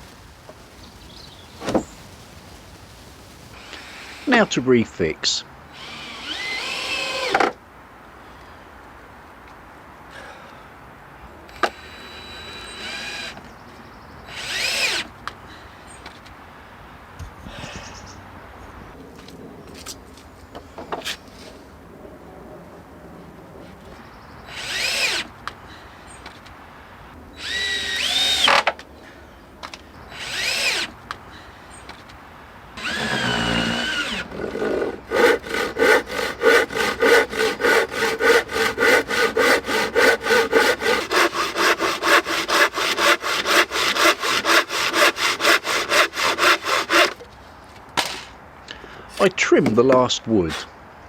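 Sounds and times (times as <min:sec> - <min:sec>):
power drill driving screws: 0:05.8 - 0:07.5, 0:14.3 - 0:15.1, 0:24.5 - 0:25.3, 0:27.4 - 0:28.6, 0:30.1 - 0:31.0, 0:32.8 - 0:47.2
hand saw cutting wood: 0:14.3 - 0:15.1, 0:24.5 - 0:25.3, 0:30.1 - 0:30.9, 0:32.8 - 0:47.2.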